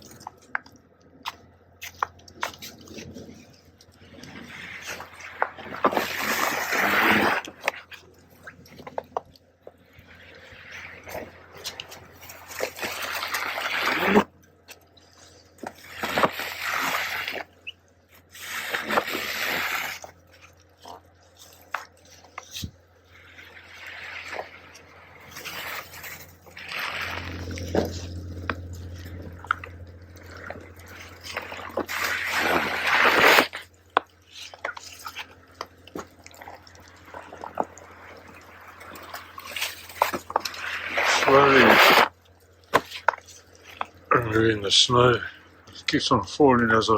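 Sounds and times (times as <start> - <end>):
hoe scraping snow: 2.4 - 9.0, 10.0 - 14.4, 15.0 - 20.2, 20.8 - 33.7, 34.3 - 45.4
snow sliding off: 4.3 - 7.6, 10.4 - 14.3, 15.7 - 17.5, 18.4 - 20.0, 23.5 - 28.1, 30.6 - 33.6, 38.4 - 42.1
water dripping: 33.6 - 41.5.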